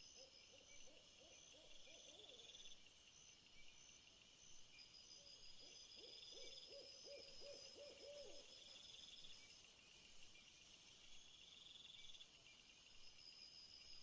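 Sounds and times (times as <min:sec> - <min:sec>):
soft owl hoots: 0:05.6 - 0:08.6.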